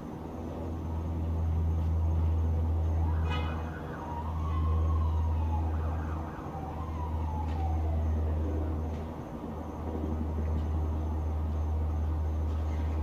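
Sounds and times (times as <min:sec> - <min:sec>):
low rumble of traffic: 0:00.0 - 0:13.0
distant emergency siren wailing: 0:02.6 - 0:12.9.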